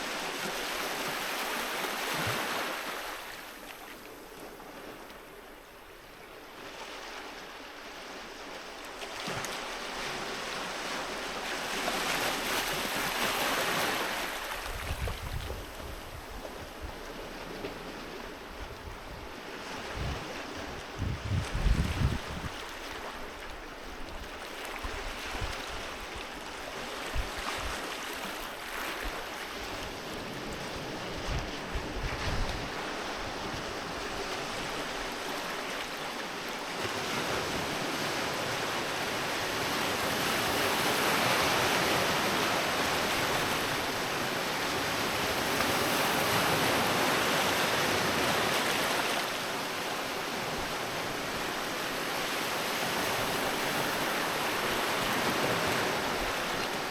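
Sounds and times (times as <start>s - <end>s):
sea waves breaking on shore: 0.0s - 56.9s
wind buffeting microphone: 14.6s - 22.7s, 29.0s - 34.6s.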